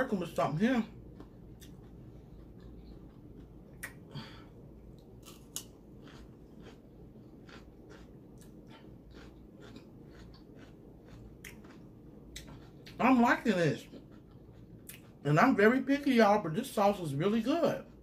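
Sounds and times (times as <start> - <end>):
person chewing: 0.1 - 15.5
sharp mouth clicks: 3.7 - 4.1.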